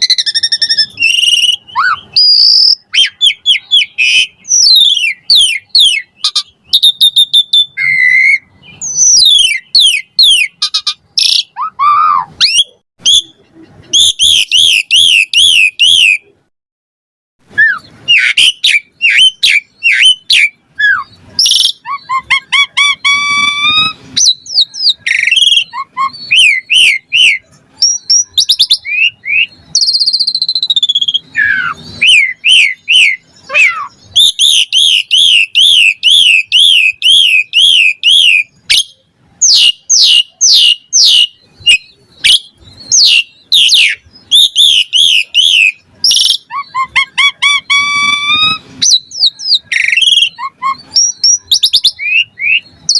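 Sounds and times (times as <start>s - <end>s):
starling singing varied song: 17.7s - 52.9s.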